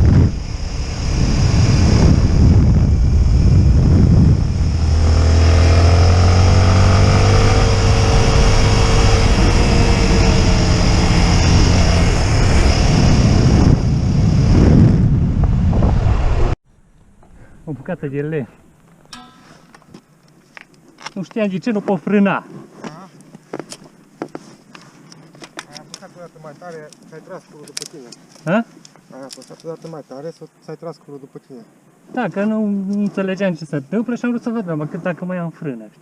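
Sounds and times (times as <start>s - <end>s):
motorcycle engine running: 0.0s - 12.8s
wind noise on microphone: 0.0s - 16.6s.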